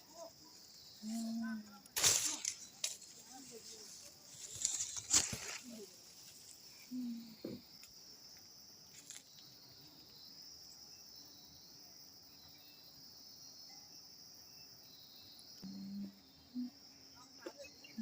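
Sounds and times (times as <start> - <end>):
insect chorus trilling: 0.0 - 18.0
short low hum: 15.6 - 16.7.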